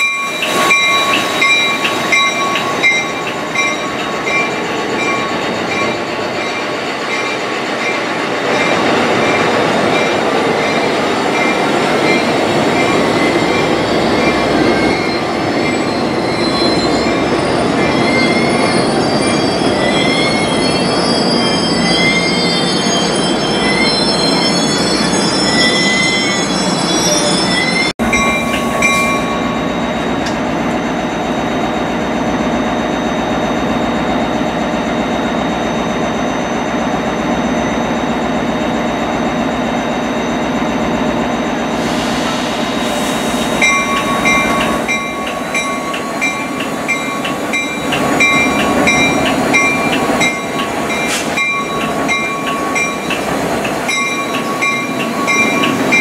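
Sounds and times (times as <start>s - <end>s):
wheels squealing on rails: 0.0s - 56.0s
diesel locomotive engine running: 28.0s - 56.0s
repeated bell ringing: 43.6s - 56.0s.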